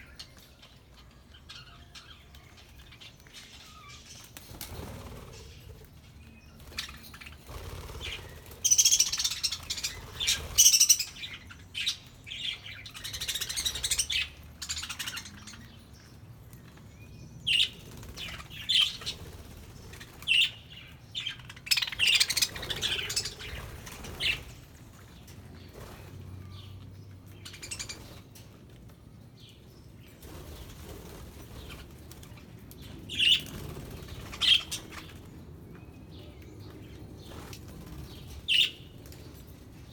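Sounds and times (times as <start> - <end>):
budgerigars chirping and chattering: 6.6 - 15.8, 17.5 - 24.5, 33.1 - 35.2.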